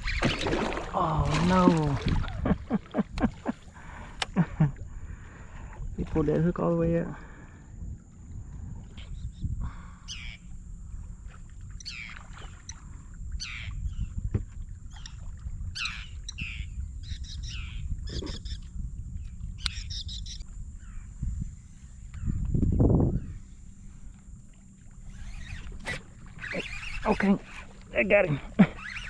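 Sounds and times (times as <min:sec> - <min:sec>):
water: 0:00.0 - 0:29.0
wind: 0:00.0 - 0:29.0
birds chirping: 0:08.9 - 0:10.9, 0:11.7 - 0:14.2, 0:15.8 - 0:18.7, 0:19.3 - 0:24.4, 0:25.0 - 0:29.0.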